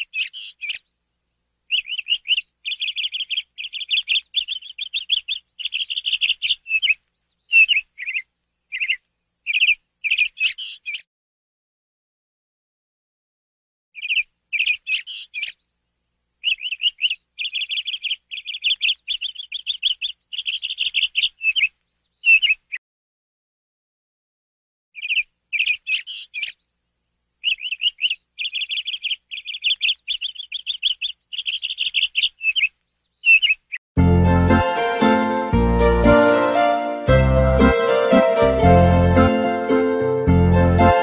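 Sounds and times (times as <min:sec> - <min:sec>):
songbird trilling: 0:00.0 - 0:00.9, 0:01.7 - 0:11.0, 0:14.0 - 0:15.6, 0:16.4 - 0:22.8, 0:25.0 - 0:26.7, 0:27.4 - 0:33.8
music: 0:34.0 - 0:41.0.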